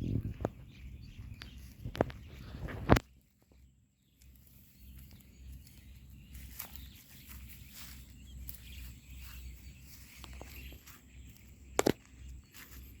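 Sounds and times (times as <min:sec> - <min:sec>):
low rumble: 0:00.0 - 0:02.9
birds: 0:00.0 - 0:13.0.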